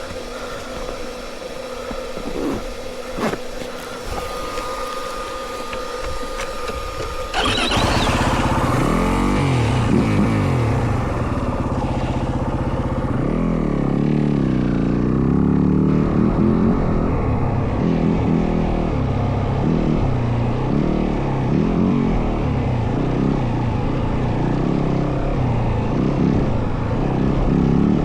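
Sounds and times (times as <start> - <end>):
dirt bike engine revving: 6.8 - 17.1.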